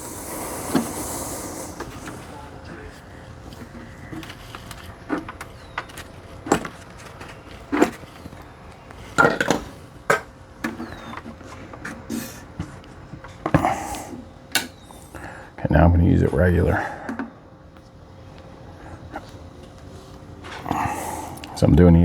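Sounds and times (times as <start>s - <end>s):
spot welder snapping: 13.9s - 15.0s.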